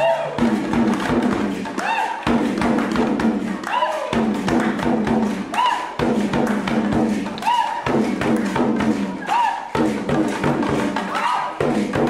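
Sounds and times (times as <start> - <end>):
hand drums beating: 0.0 - 12.0
group chanting: 3.4 - 4.4, 8.9 - 12.0.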